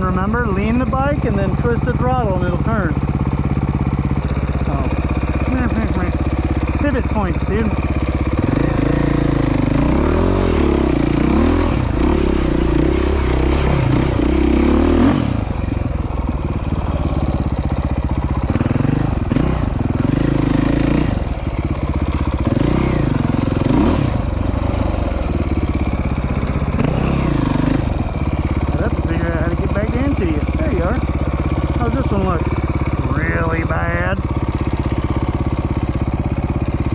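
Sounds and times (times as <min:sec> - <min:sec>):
dirt bike engine revving: 0:00.0 - 0:36.9.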